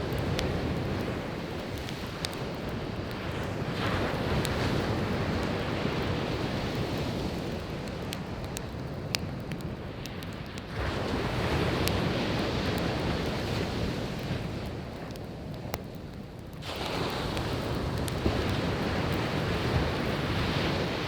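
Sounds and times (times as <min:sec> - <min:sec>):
sea waves washing ashore: 0:00.0 - 0:15.6, 0:16.6 - 0:21.0
firewood crackling and popping: 0:00.0 - 0:21.0.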